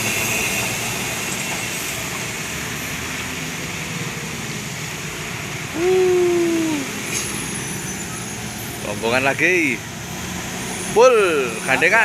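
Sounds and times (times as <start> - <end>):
heavy trucks passing: 0.0 - 12.0
road traffic rumble: 0.0 - 12.0
loud pitched tone: 5.8 - 7.0.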